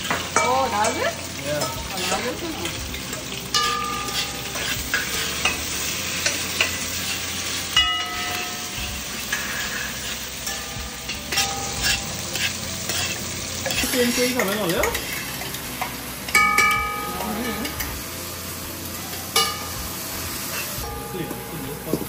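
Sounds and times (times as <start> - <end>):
spoons knocking on metal pots: 0.0 - 7.0, 7.7 - 9.6, 10.4 - 18.0, 19.3 - 19.8
spoons stirring and scraping pots: 0.0 - 18.1, 18.9 - 22.0
peppers sizzling in a pot: 0.0 - 22.0
metal ringing: 7.7 - 8.9, 16.3 - 17.2.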